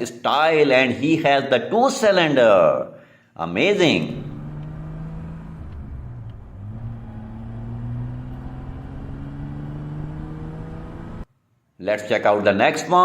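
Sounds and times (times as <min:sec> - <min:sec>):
motorcycle engine running: 0:04.1 - 0:11.2.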